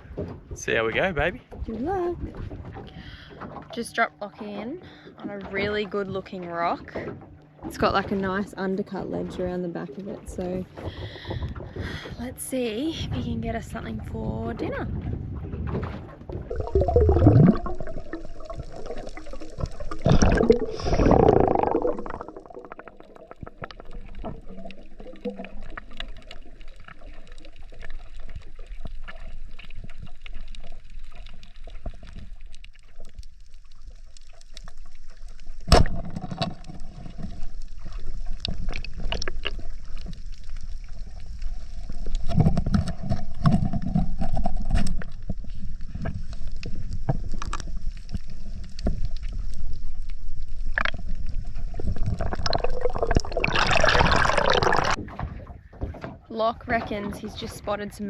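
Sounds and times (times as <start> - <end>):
water gurgling and sloshing: 0.0 - 58.0
faint crackling clicks: 21.8 - 53.7.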